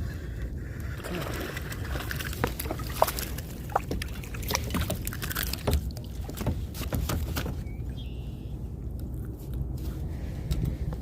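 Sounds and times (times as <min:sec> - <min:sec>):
steady low rumble: 0:07.6 - 0:11.0.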